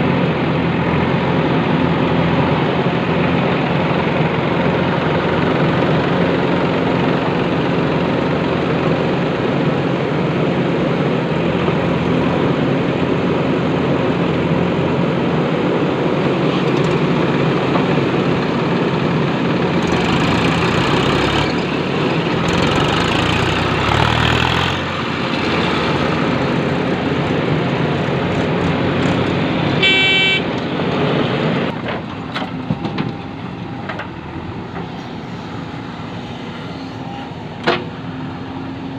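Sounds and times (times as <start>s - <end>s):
heavy diesel machinery running: 0.0s - 38.9s
horn toot: 29.8s - 30.5s.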